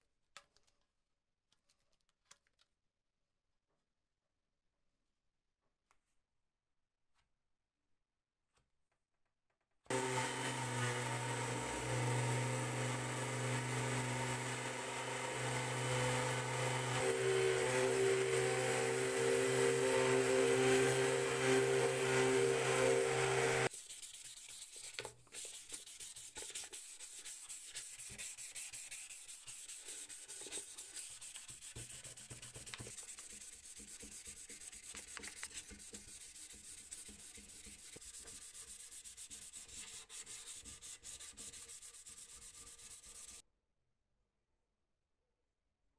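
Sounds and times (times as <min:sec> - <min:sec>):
sander hum: 0:09.9 - 0:23.7, 0:27.8 - 0:43.4
sanding metal: 0:09.9 - 0:43.4.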